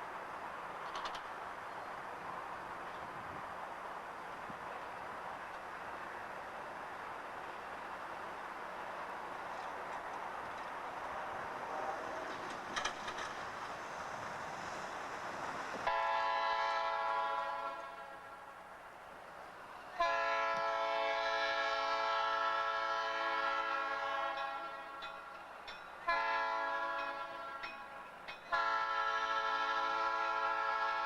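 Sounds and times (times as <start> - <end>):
moving train rumble: 0.0 - 31.0
locomotive air horn blasts: 11.2 - 12.2, 15.8 - 18.4, 20.0 - 25.0, 26.1 - 27.7, 28.5 - 31.0.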